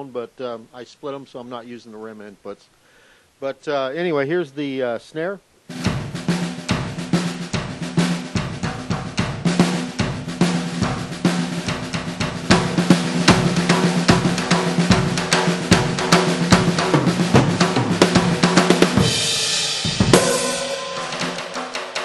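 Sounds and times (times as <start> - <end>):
electronic snare drum hits: 5.7 - 22.0.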